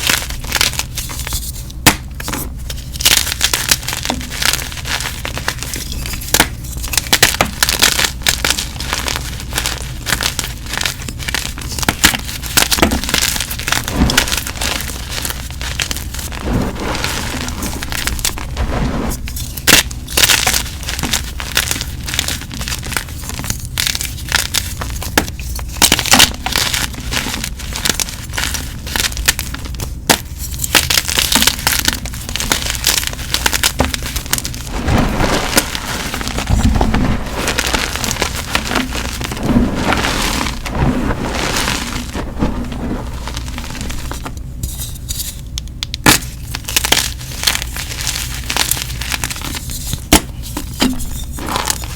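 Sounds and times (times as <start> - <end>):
chalk crunching by hand: 8.6 - 45.4.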